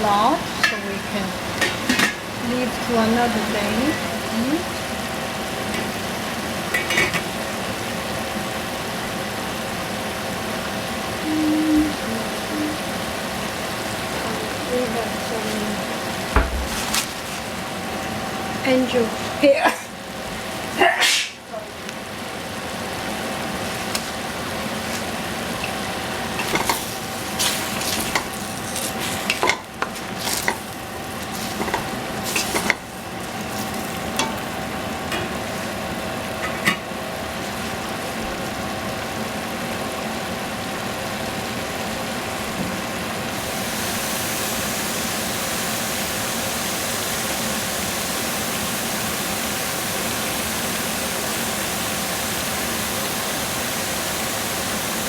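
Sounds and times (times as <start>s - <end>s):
food sizzling in a hot pan: 0.0s - 55.0s
utensil scraping a pan: 26.4s - 30.7s, 31.3s - 32.8s.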